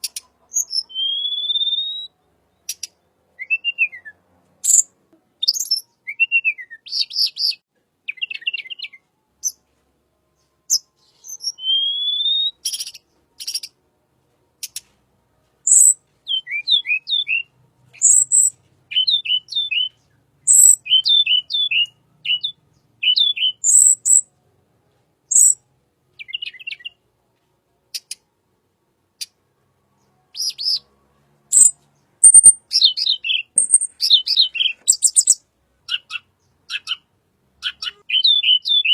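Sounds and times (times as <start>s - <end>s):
bird chirps and clicks: 0.0s - 2.0s, 2.6s - 4.0s, 4.6s - 5.8s, 12.6s - 13.8s, 14.6s - 15.0s, 15.7s - 17.4s, 18.0s - 19.9s, 25.3s - 25.6s, 27.9s - 28.3s, 31.5s - 38.9s
down-slurred whistled notes: 0.8s - 2.2s, 10.7s - 12.6s.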